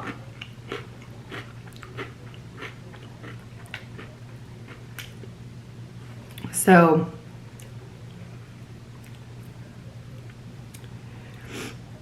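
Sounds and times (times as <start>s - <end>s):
crunchy chewing: 0.0s - 5.3s.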